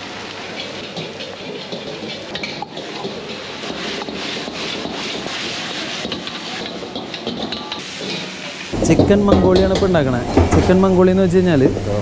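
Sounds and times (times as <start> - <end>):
metal ladle scraping a wok: 0.0 - 8.8
chicken sizzling in a wok: 0.0 - 10.4.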